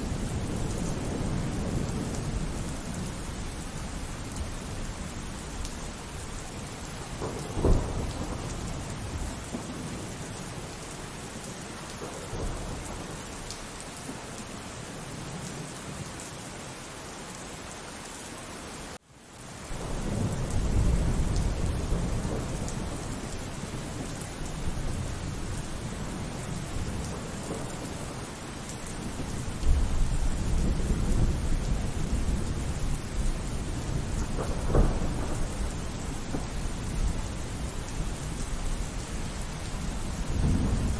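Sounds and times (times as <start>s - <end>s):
rolling thunder rumble: 0.0s - 10.7s, 19.7s - 40.9s
heavy rain: 0.0s - 40.9s
thunder clap: 7.1s - 10.0s, 19.7s - 28.3s, 29.0s - 39.0s, 39.7s - 40.9s.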